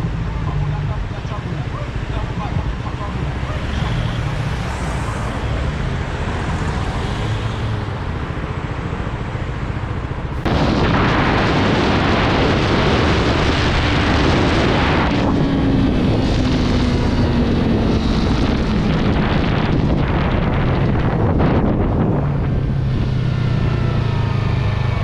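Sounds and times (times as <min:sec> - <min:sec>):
wind buffeting microphone: 0:10.3 - 0:25.0.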